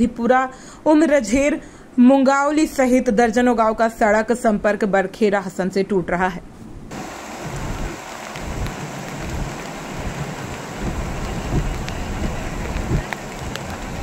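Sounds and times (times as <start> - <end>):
floodwater running: 6.9 - 14.0
low rumbles: 6.9 - 14.0
steady rain: 6.9 - 14.0.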